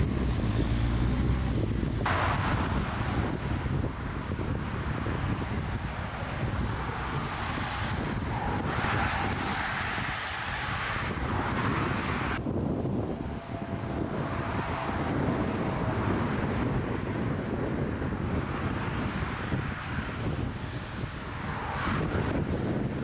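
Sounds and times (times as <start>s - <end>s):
strong wind buffeting microphone: 0.0s - 23.0s.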